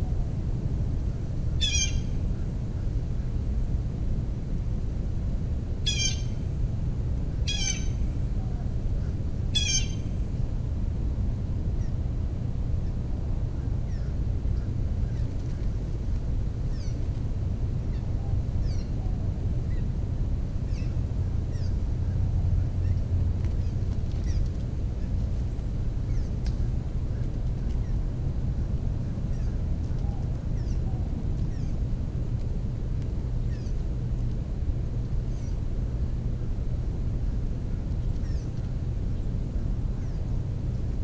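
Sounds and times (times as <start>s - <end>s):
steady low rumble: 0.0s - 41.0s
loud bird calls: 1.6s - 2.2s, 5.9s - 6.4s, 7.5s - 8.0s, 9.0s - 10.2s.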